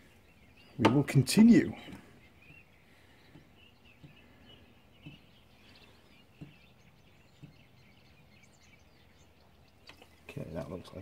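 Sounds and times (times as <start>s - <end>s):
faint birds chirping: 0.0s - 11.0s
soft low thuds: 1.8s - 8.3s.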